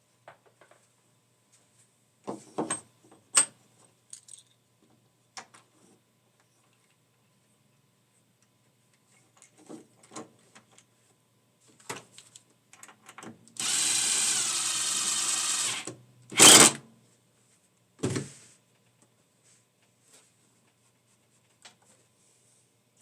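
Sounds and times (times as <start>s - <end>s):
electric power tool motor whirring: 13.6s - 16.8s.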